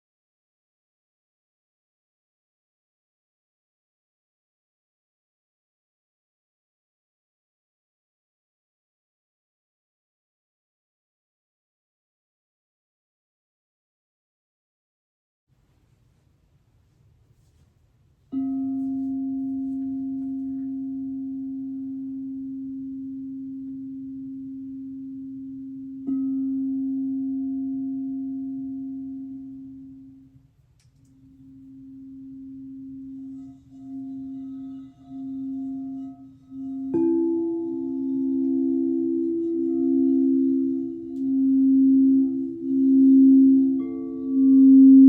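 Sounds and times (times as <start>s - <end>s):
higher singing bowl ringing: 18.3s - 30.4s, 31.2s - 45.0s.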